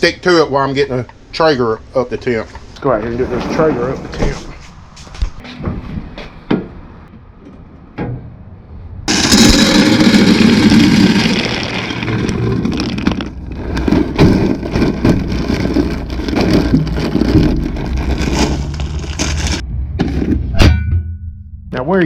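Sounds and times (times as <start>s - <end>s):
pellets pouring into hopper: 9.1s - 19.6s.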